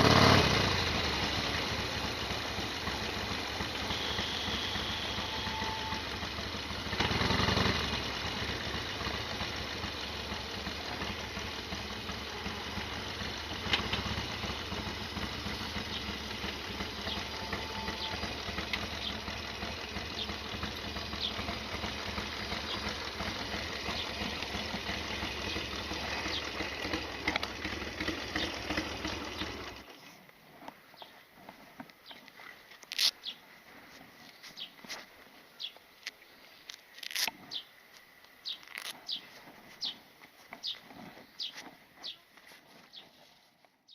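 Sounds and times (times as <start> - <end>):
engine revving: 0.0 - 29.9
motorcycle engine idling with rattle: 0.0 - 43.9.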